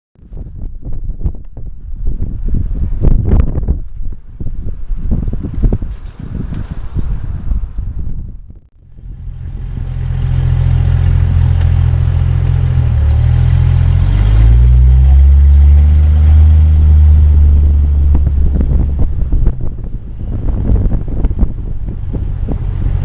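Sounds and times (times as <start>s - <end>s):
rustling noise: 4.9s - 7.9s
car engine droning: 8.8s - 23.0s.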